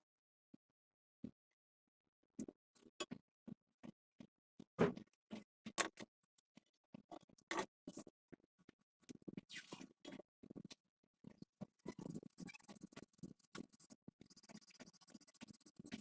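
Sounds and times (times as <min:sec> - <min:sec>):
rasping scrape: 0:11.9 - 0:16.0.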